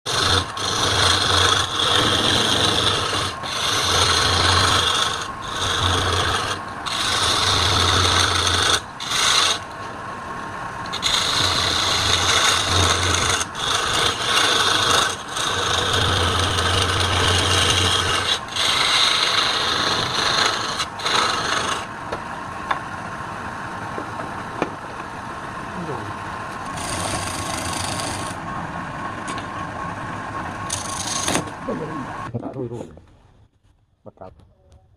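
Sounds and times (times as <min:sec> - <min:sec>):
lathe tool scraping workpiece: 0:00.0 - 0:22.0, 0:26.5 - 0:28.6, 0:30.6 - 0:32.3
low motor hum: 0:00.0 - 0:34.9.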